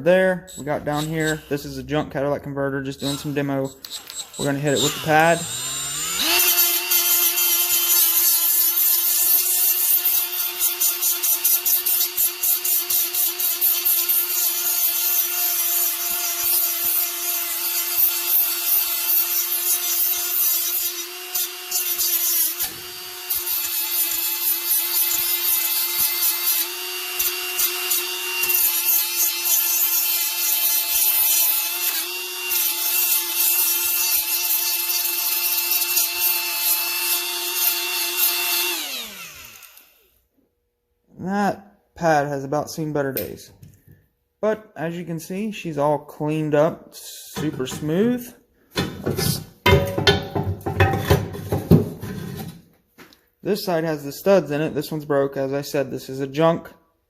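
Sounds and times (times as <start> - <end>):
die grinder motor whine: 3.0 - 40.1.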